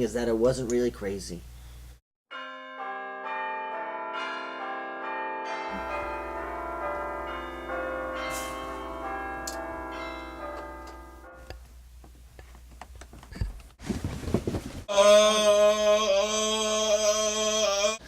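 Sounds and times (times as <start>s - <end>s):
bells ringing: 2.3s - 11.5s.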